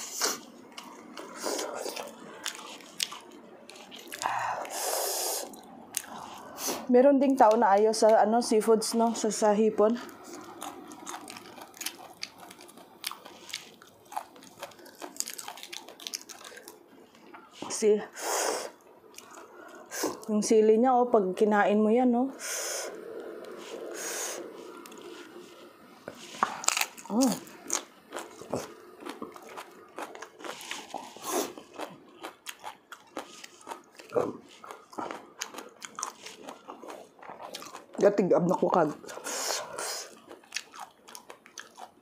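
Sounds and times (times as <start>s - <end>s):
chewing crisp chili pepper: 0.0s - 6.7s, 10.0s - 17.4s, 23.3s - 42.0s.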